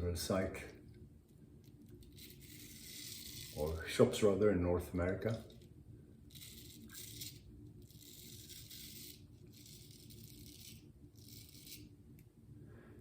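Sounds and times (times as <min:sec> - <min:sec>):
razor scraping stubble: 0:02.0 - 0:04.2, 0:06.3 - 0:11.9.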